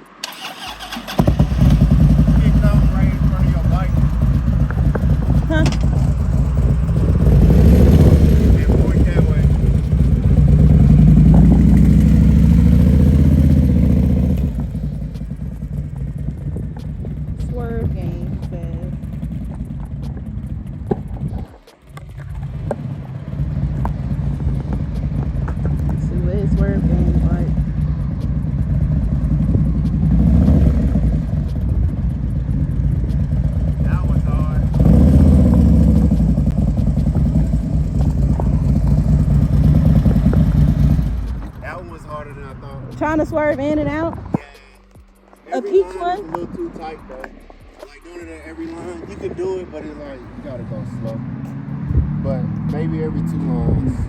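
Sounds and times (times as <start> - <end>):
motorcycle engine running: 0.2 - 54.0.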